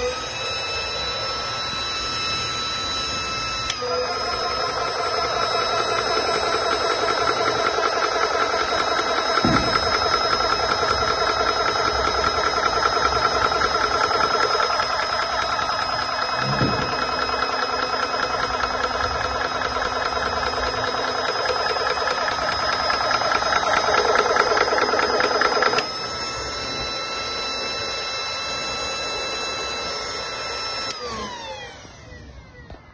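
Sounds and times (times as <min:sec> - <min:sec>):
air compressor high whine: 0:00.0 - 0:32.9
air compressor piston chatter: 0:03.9 - 0:25.9.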